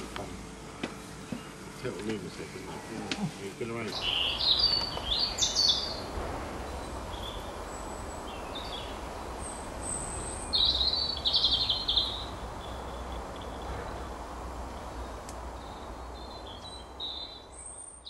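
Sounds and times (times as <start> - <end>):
songbirds singing: 0.0 - 18.0
low rumble: 3.9 - 17.8.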